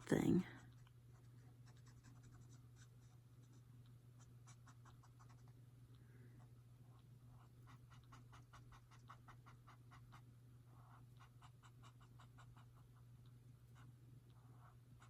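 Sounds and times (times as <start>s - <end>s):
pen scratching on paper: 1.2s - 3.6s, 7.3s - 12.8s.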